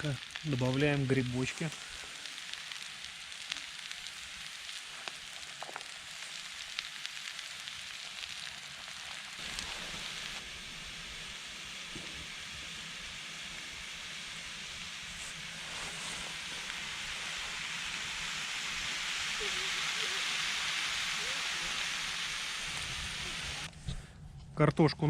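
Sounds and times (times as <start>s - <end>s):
food sizzling in a pan: 0.0s - 23.7s
sharp pops of frying fat: 2.0s - 10.4s, 11.8s - 12.6s.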